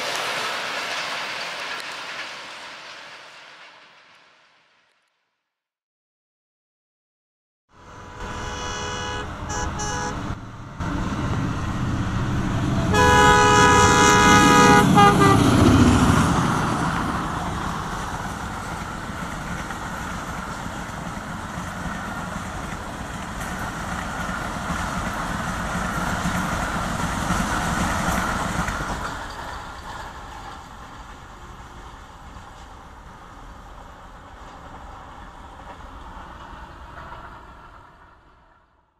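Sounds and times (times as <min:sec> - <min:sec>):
train rumbling on rails: 0:00.0 - 0:04.5, 0:07.7 - 0:38.8
train horn blasts: 0:07.7 - 0:11.3, 0:12.8 - 0:15.8.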